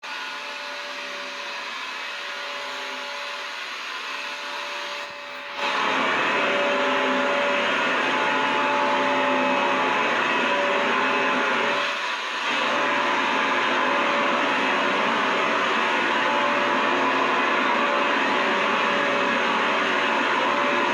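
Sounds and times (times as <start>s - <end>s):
vacuum cleaner motor humming: 0.1s - 20.9s.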